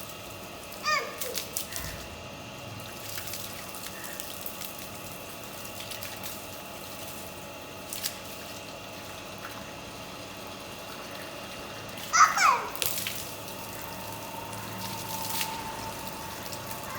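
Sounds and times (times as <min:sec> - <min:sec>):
running water pouring: 0:00.0 - 0:16.9.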